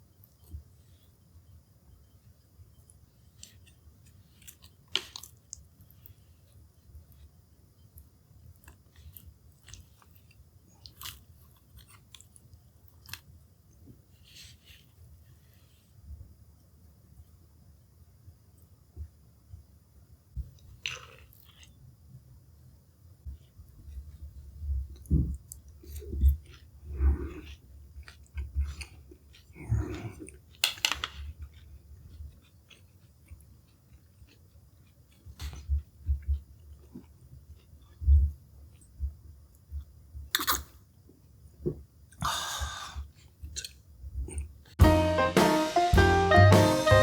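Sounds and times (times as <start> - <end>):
food chewing and crunching: 2.0 - 13.5, 20.5 - 22.0, 23.4 - 41.0, 43.1 - 44.8.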